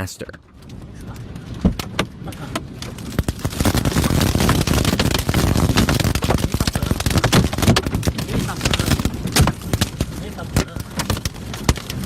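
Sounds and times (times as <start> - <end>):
tornado wind: 0.0 - 12.0
flying debris clicking and knocking: 2.8 - 12.0.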